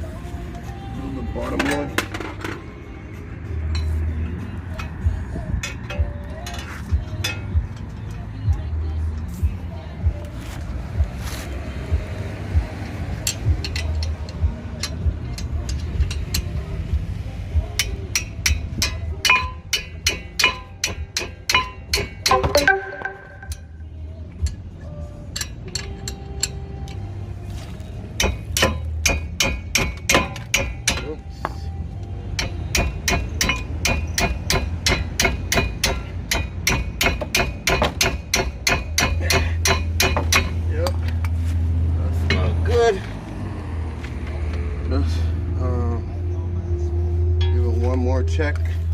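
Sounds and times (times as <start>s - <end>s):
background music: 0.0s - 48.9s
ratchet wrench clicking: 13.2s - 16.7s, 25.3s - 27.0s.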